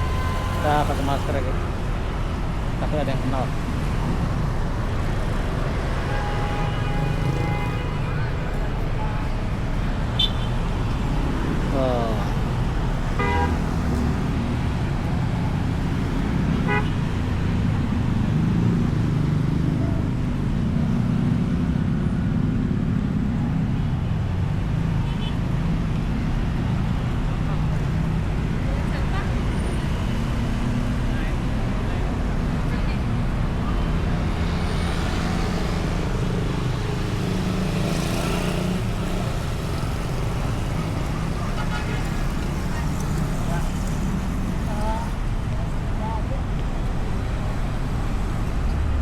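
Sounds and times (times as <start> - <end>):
car horn beep: 0.0 - 1.3, 10.2 - 10.6, 13.2 - 13.8, 16.6 - 17.0
road traffic rumble: 0.0 - 49.0.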